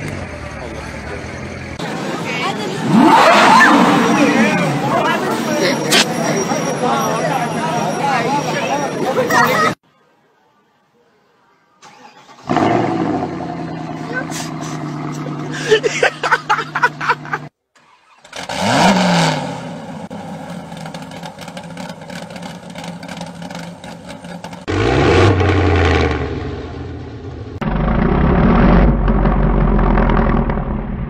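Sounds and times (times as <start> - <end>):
deep engine rumble: 0.0 - 2.1, 12.5 - 15.8, 19.6 - 31.0
sports car engines revving: 0.0 - 7.1, 12.4 - 15.7, 18.3 - 31.0.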